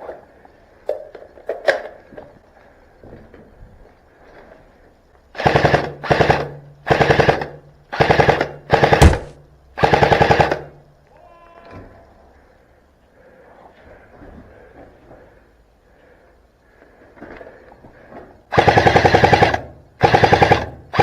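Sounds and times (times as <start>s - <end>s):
airsoft rifle full-auto bursts: 5.3s - 10.8s, 18.5s - 21.0s.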